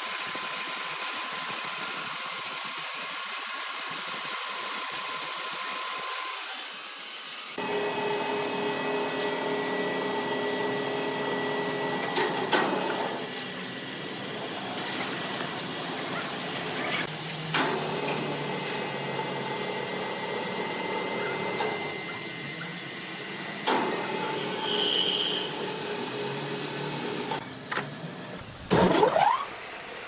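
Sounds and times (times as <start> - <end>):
wood-processing machinery hissing: 0.0 - 28.4
steady machine hum: 7.6 - 28.4.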